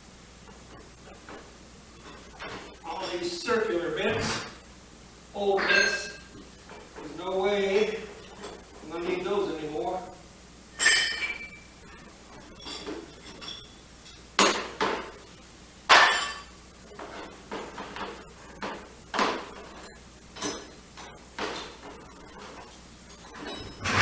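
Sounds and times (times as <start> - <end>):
metal tools clanking in a tool box: 23.3 - 24.0.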